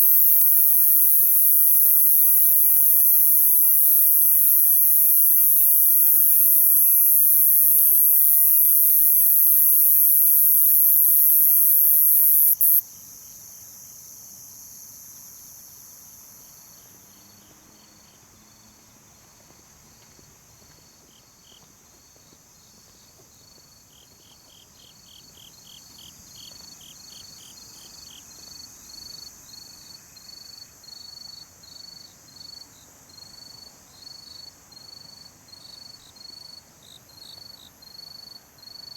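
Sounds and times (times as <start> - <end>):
high-pitched insect drone: 0.0 - 12.8
rapid insect trilling: 0.0 - 12.8
crickets chirping: 0.0 - 18.6, 23.4 - 38.9.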